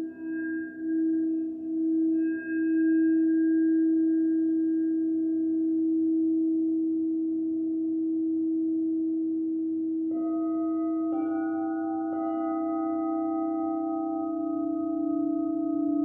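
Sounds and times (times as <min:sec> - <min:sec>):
singing bowl ringing: 0:00.0 - 0:06.8, 0:10.1 - 0:16.0.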